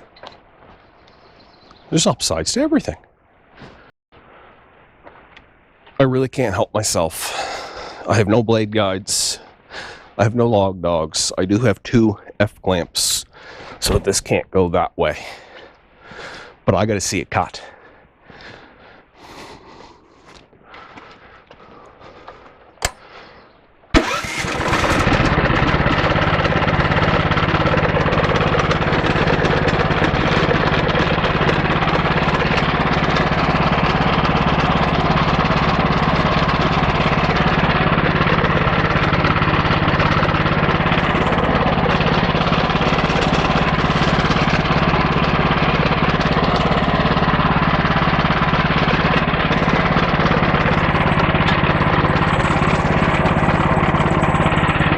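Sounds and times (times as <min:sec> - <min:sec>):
sawmill engine running: 0:06.8 - 0:14.2, 0:23.9 - 0:54.9
sharp click: 0:22.8 - 0:23.0.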